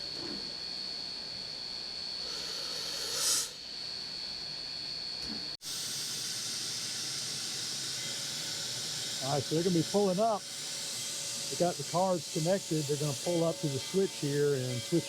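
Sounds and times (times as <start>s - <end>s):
steam locomotive hissing: 2.2s - 3.6s, 5.6s - 15.0s.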